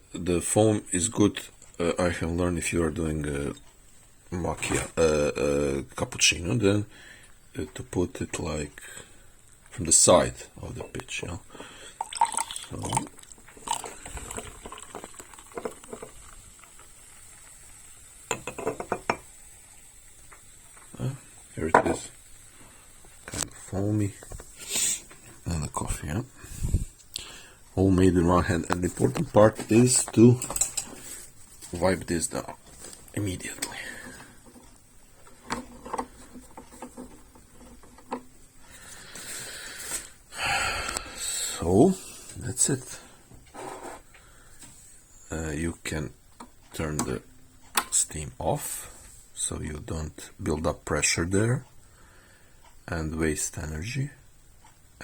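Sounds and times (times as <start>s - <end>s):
faint high hiss: 0.0s - 55.0s
milk pouring and gurgling: 11.8s - 21.3s.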